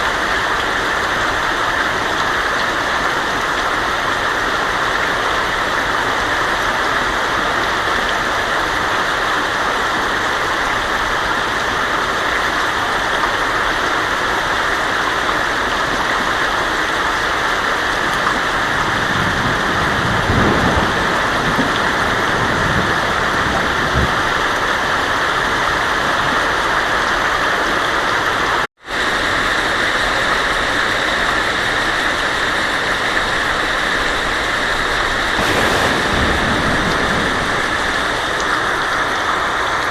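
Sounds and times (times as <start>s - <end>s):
heavy rain on a tin roof: 0.0s - 39.9s
thunder rumbling: 35.1s - 39.8s.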